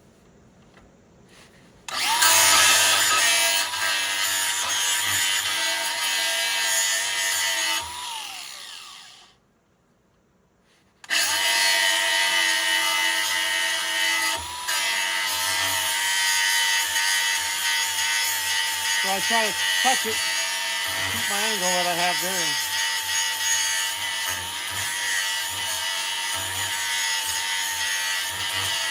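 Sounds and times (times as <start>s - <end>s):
motor winding down whine: 1.9s - 3.8s
power tool grinding metal: 1.9s - 9.2s, 11.0s - 28.9s.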